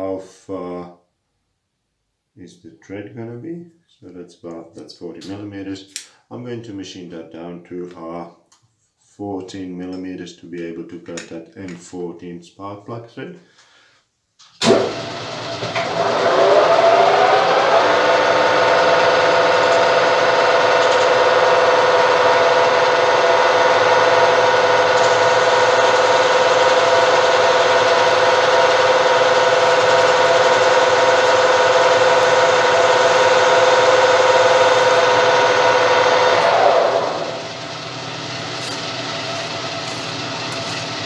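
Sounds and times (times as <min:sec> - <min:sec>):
lathe running with whine: 0:14.7 - 0:41.0.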